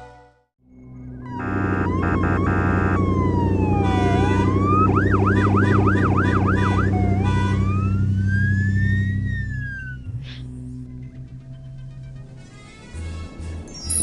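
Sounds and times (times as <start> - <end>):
emergency vehicle siren: 1.0 - 10.2
buzzy horn blasts: 1.2 - 8.2.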